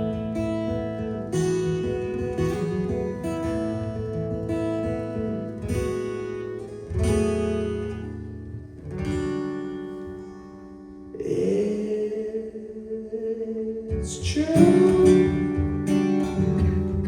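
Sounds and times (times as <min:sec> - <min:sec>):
acoustic guitar strumming chords: 0:00.0 - 0:17.0
person singing: 0:11.2 - 0:16.4.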